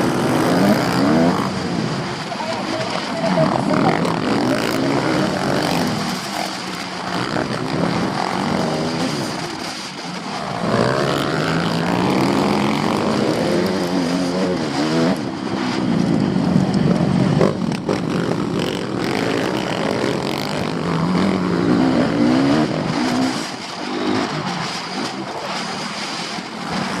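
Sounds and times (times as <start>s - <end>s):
motocross bikes revving: 0.0s - 27.0s.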